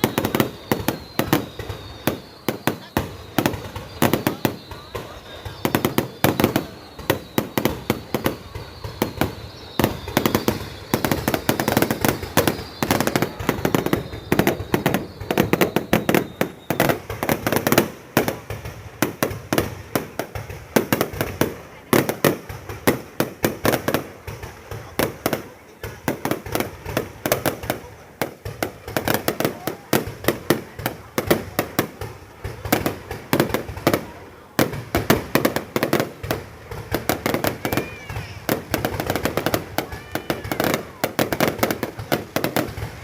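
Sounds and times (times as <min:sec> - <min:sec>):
high whistle: 0:00.0 - 0:18.5
fireworks bangs and crackles: 0:00.0 - 0:43.0.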